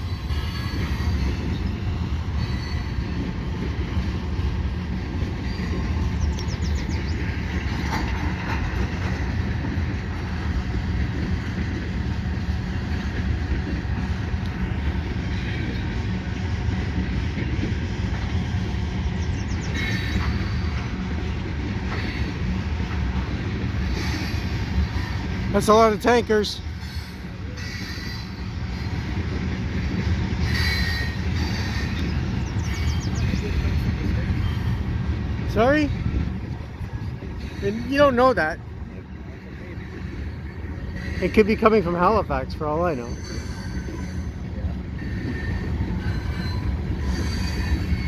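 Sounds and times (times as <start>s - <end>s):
steel wheels rumbling on rail: 0.0s - 48.0s
faint wheel squeals: 2.4s - 3.2s, 30.4s - 33.7s.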